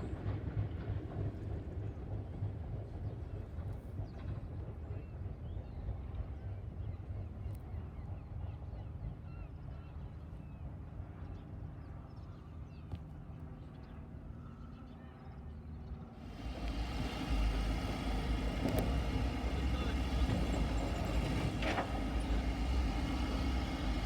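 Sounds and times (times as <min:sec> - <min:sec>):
low steady rumble: 0:16.2 - 0:24.0.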